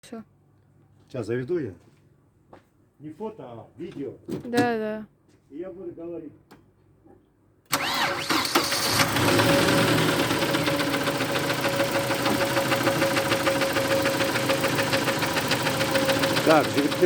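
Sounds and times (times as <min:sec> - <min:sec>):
engine idling: 0:07.8 - 0:17.0
fast regular engine knocking: 0:08.9 - 0:17.0.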